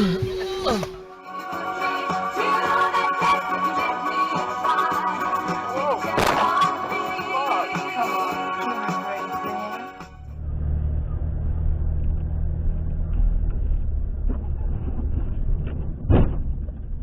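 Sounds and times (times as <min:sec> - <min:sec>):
background music: 0:00.0 - 0:10.4
road noise: 0:10.1 - 0:16.1
vehicle engine rumble: 0:10.1 - 0:17.0
loud thump: 0:15.6 - 0:17.0.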